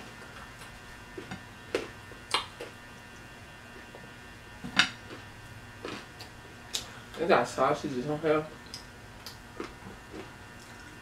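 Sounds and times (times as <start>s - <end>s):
steady electrical hum: 0.0s - 11.0s
mouth clicks and smacks: 2.3s - 2.7s
person chewing: 5.0s - 6.9s, 8.6s - 11.0s.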